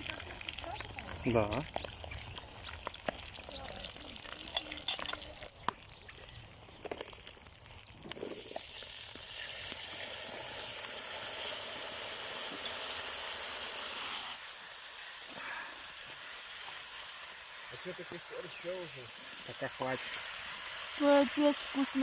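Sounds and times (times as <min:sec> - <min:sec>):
food frying in hot oil: 0:00.0 - 0:22.0.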